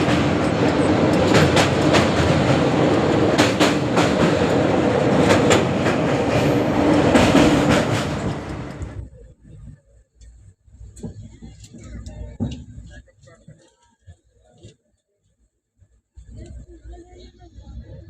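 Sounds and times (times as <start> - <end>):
wheels clacking over rail joints: 0.0 - 9.0
train rumbling on track: 0.0 - 13.6, 16.1 - 18.0.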